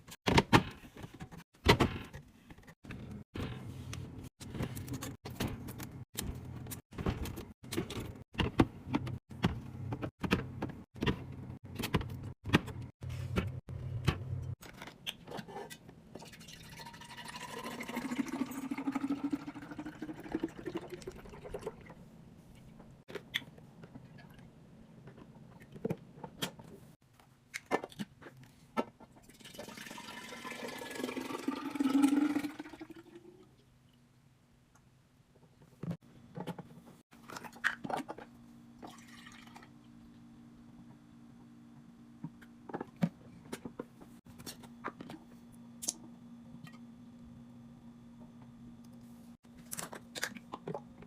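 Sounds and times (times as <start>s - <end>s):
liquid pouring into container: 16.2s - 22.0s, 29.3s - 33.2s, 38.8s - 39.8s.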